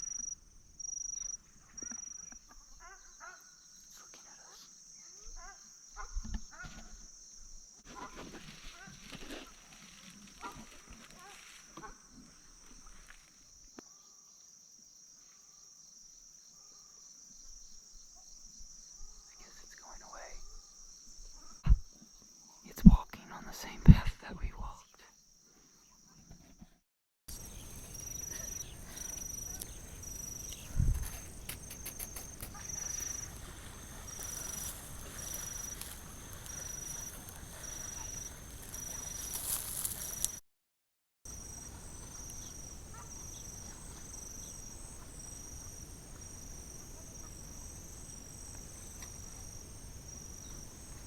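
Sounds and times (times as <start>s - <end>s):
high-pitched insect chorus: 0.0s - 26.1s, 27.3s - 40.4s, 41.3s - 51.0s
low thump: 21.6s - 21.9s.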